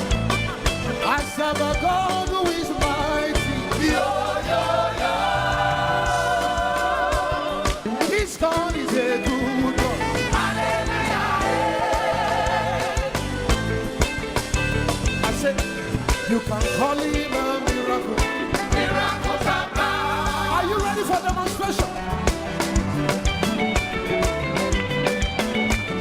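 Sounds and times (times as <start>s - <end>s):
gospel band playing: 0.0s - 26.0s
person singing: 15.2s - 22.2s.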